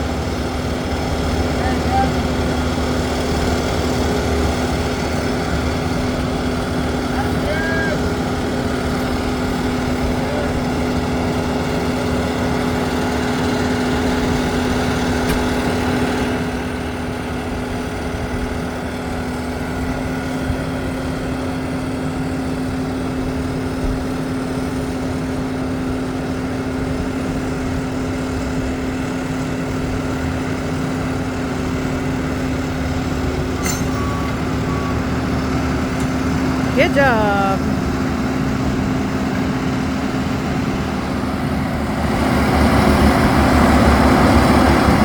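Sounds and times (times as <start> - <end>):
farm machinery engine running: 0.0 - 17.0.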